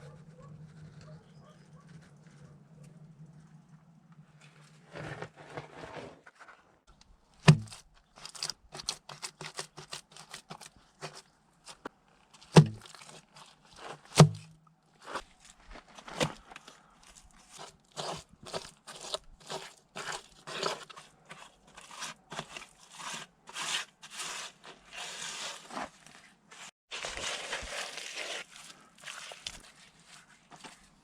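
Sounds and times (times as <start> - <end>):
short scrapes: 4.4 - 6.8.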